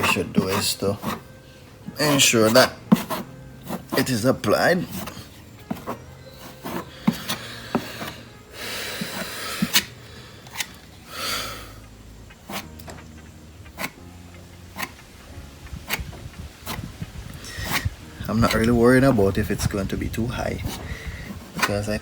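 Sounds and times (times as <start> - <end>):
filler scraping on car bumper: 0.0 - 1.3, 1.9 - 8.3, 8.9 - 9.9, 17.4 - 19.2.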